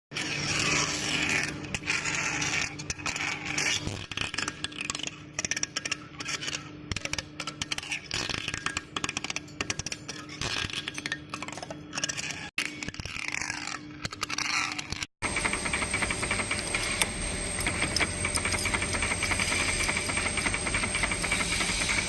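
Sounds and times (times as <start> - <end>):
steady machine hum: 11.0 - 22.0.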